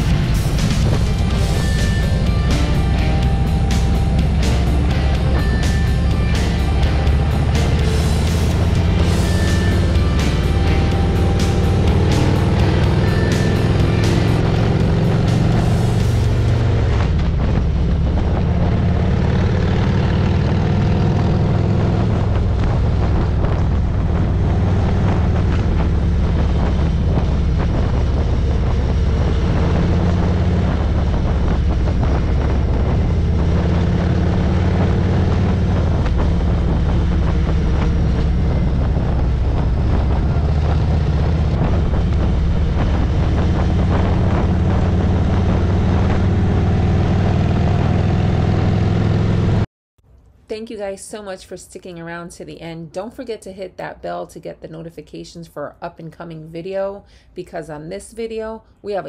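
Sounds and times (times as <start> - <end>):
wind rushing over microphone: 0.0 - 49.5
motorcycle engine at speed: 0.0 - 49.7.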